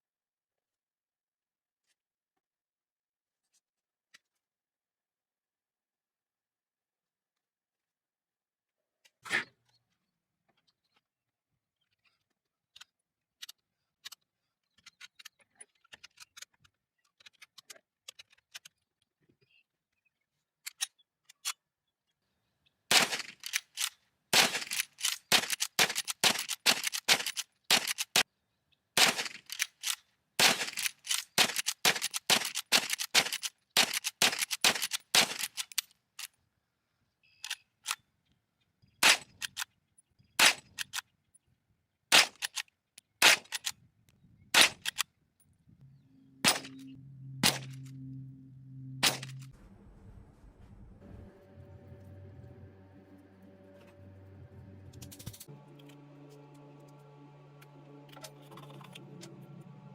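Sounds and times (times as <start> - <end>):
rapid sharp clicks and strokes: 22.9 - 28.3.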